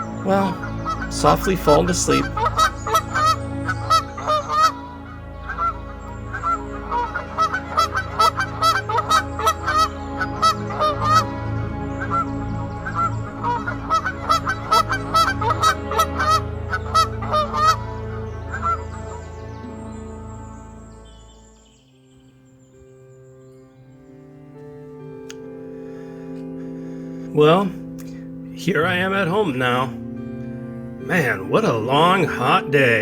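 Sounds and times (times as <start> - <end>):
flock of birds calling: 0.0 - 22.8.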